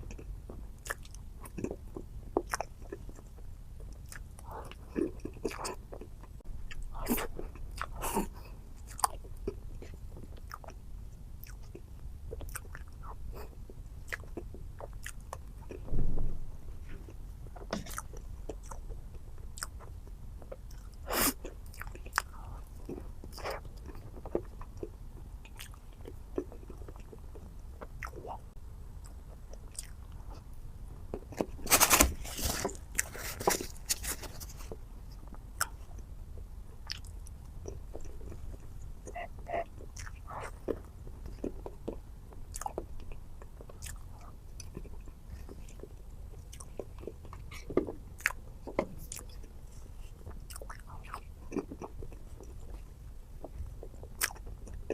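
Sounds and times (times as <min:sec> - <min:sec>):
chewing and wet mouth sounds: 0:00.0 - 0:15.9, 0:16.8 - 0:54.9
crunching: 0:31.3 - 0:34.8.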